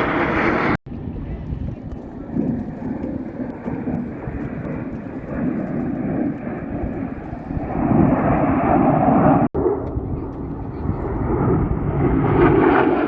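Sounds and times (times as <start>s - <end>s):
airplane engine roar: 0.0s - 13.0s.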